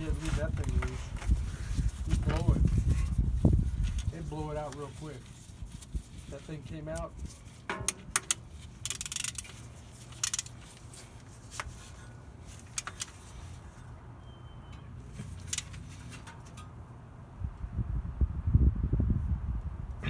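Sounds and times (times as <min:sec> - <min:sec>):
tools clicking and knocking: 0:07.6 - 0:09.6, 0:12.7 - 0:13.2.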